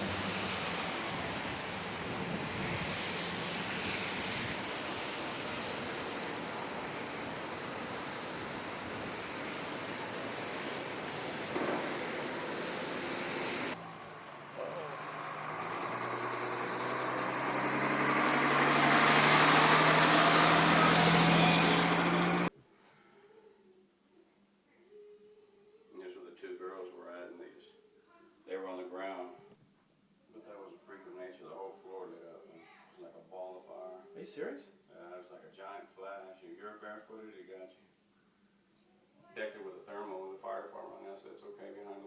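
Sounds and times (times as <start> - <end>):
distant traffic: 0.0 - 22.5
vehicle engine humming: 0.0 - 22.5
wind: 0.0 - 22.5.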